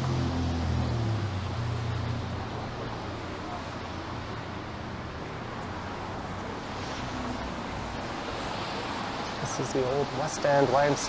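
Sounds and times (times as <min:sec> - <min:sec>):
city street traffic: 0:00.0 - 0:11.0
tyres hissing on wet pavement: 0:06.5 - 0:11.0.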